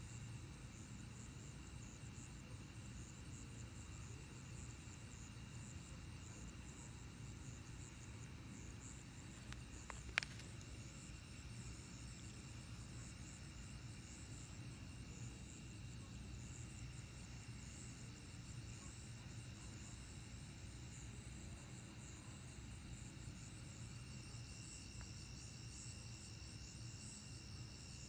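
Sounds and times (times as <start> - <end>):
crickets and insects trilling: 0.0 - 28.0
faint ticks: 7.6 - 13.1.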